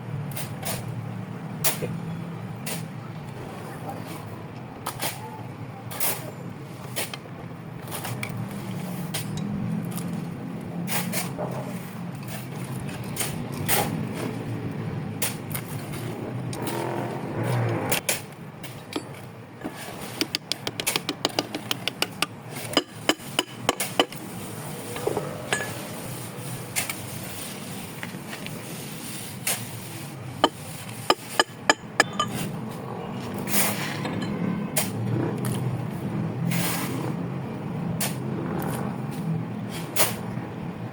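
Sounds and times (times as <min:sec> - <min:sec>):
hand tools clinking on metal: 0:18.6 - 0:24.3, 0:25.0 - 0:26.0, 0:30.4 - 0:32.7, 0:33.8 - 0:34.5.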